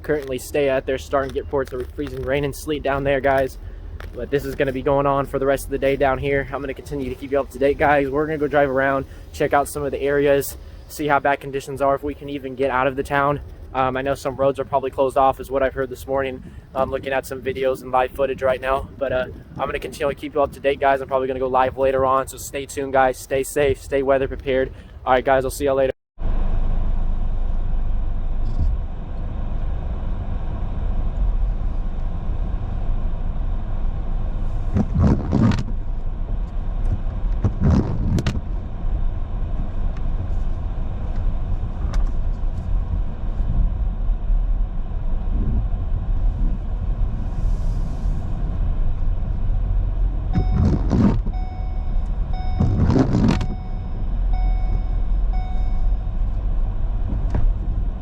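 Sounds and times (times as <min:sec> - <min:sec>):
car engine rumble: 0:00.0 - 0:58.0
tyres on road: 0:00.0 - 0:58.0
faint repeating beep: 0:50.4 - 0:56.1.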